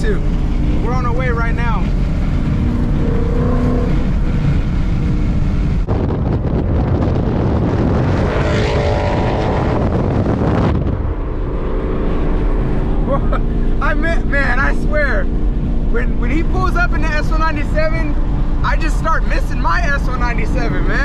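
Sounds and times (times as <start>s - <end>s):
car engine accelerating: 0.0s - 21.0s
wind on microphone: 1.8s - 13.1s.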